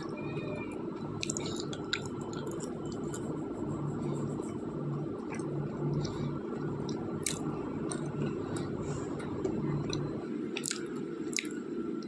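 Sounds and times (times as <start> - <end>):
wet squishy chewing: 1.2 - 3.4, 5.2 - 11.6.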